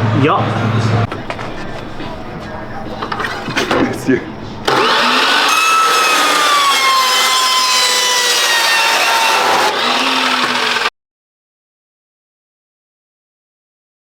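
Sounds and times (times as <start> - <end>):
power tool cutting metal pipe: 4.6 - 10.9.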